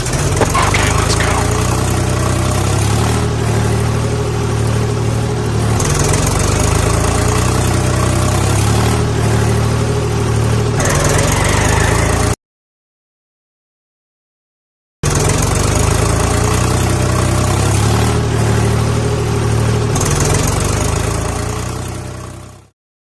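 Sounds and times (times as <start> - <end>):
engine idling: 0.0 - 2.8.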